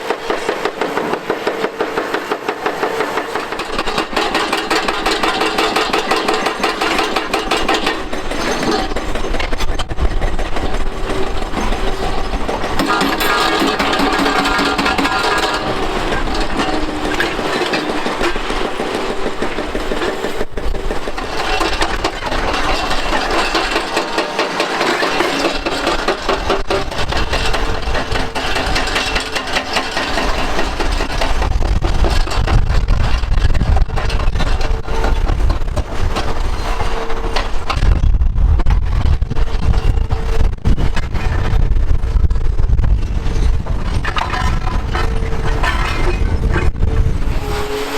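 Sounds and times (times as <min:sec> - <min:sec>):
excavator diesel engines: 0:00.0 - 0:47.9
rubble cracking and clattering: 0:03.6 - 0:36.6, 0:43.3 - 0:46.8.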